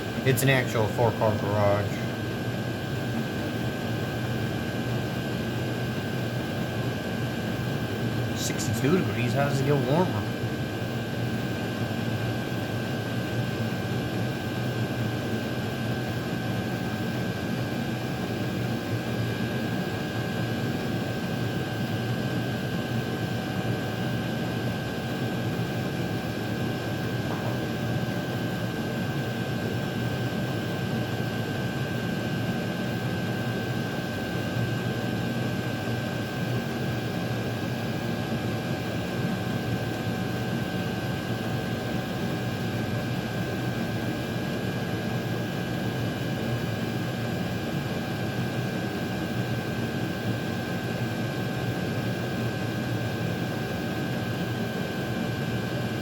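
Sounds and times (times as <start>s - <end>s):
thin constant whine: 0.0s - 17.0s.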